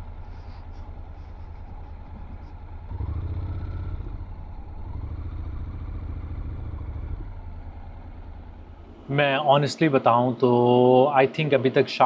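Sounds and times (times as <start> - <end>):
motorcycle engine pulling away: 0.0 - 9.8.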